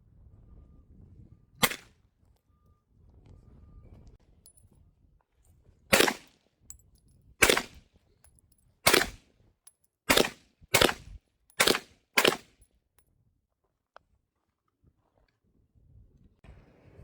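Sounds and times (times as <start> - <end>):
gunshots: 1.6 - 1.8, 5.9 - 6.3, 7.4 - 7.8, 8.9 - 9.2, 10.1 - 11.0, 11.6 - 12.5.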